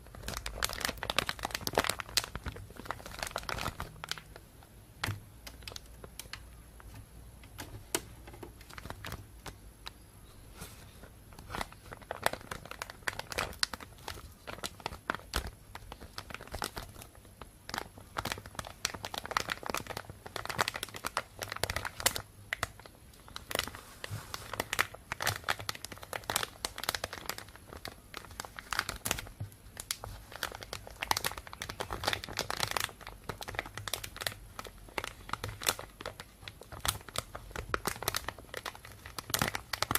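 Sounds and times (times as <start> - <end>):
plastic bag crinkling: 0.0 - 4.4, 5.0 - 10.0, 10.6 - 39.9.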